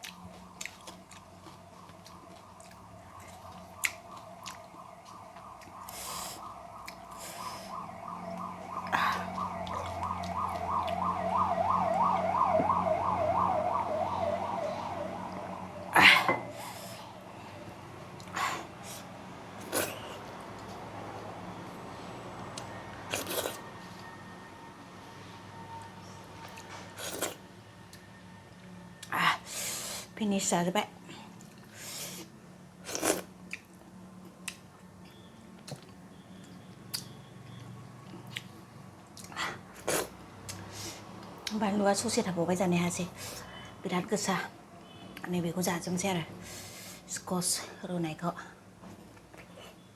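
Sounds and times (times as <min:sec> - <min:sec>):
emergency siren warbling: 0:00.1 - 0:30.2.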